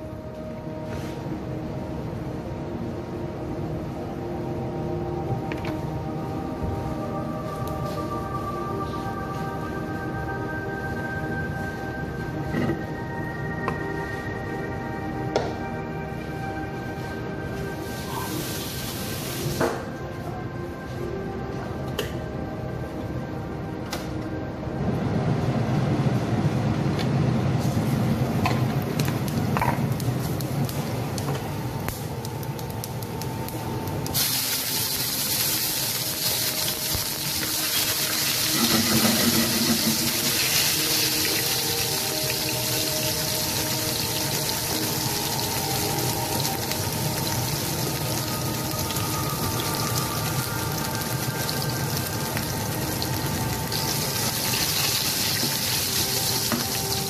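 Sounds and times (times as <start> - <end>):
oil sizzling in a frying pan: 17.8 - 19.6, 34.1 - 57.0.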